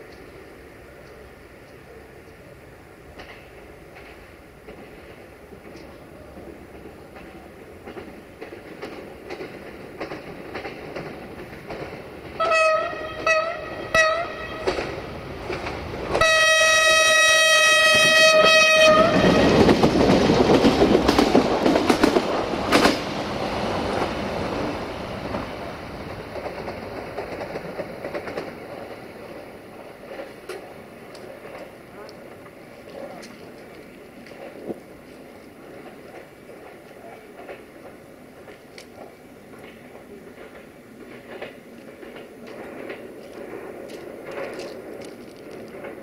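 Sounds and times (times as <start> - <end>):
train wheels clacking over rail joints: 3.1 - 46.0
train horn: 12.4 - 14.9, 16.2 - 19.8.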